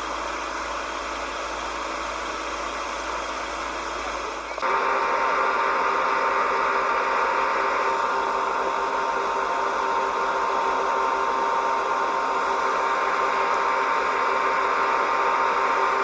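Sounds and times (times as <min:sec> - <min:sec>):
machine drone and whine: 0:00.0 - 0:16.0.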